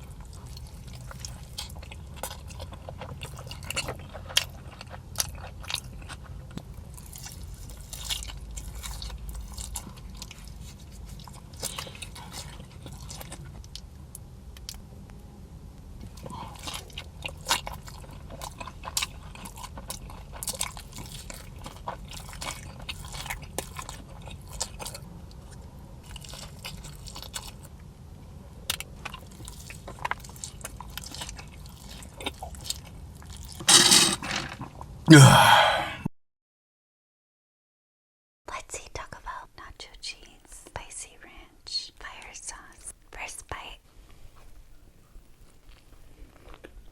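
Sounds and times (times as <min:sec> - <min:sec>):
crunching and chewing chicken wings: 0:00.0 - 0:15.1, 0:15.8 - 0:33.6, 0:45.4 - 0:46.9.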